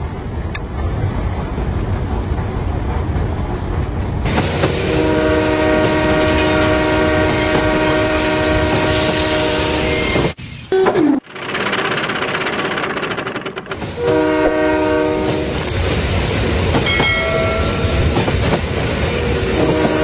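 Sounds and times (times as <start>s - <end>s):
train rumbling along track: 0.0s - 20.0s
train horn chord: 4.7s - 10.0s, 14.0s - 15.6s, 19.4s - 20.0s.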